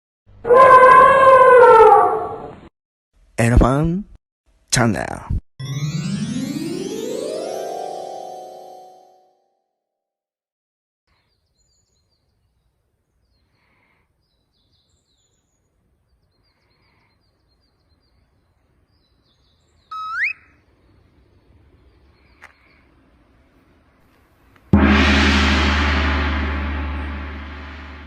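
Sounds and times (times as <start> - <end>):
faint bird chirps: 11.2 - 23.0.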